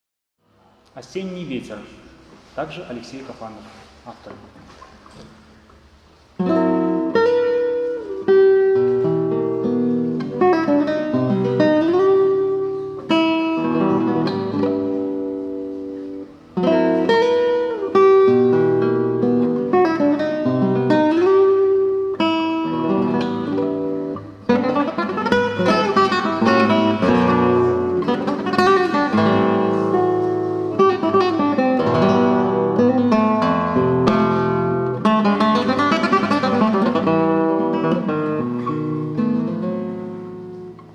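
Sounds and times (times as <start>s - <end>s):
acoustic guitar playing slowly: 0.4s - 40.9s.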